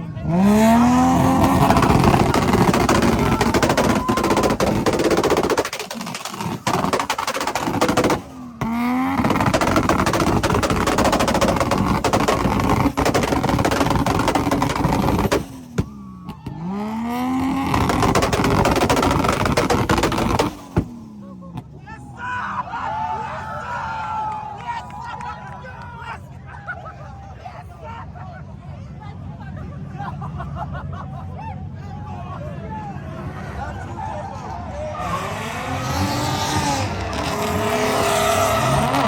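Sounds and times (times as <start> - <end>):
car engine revving hard: 0.1 - 15.9, 16.6 - 21.1, 35.0 - 39.0
exhaust crackling pops: 0.5 - 21.7, 36.3 - 39.0.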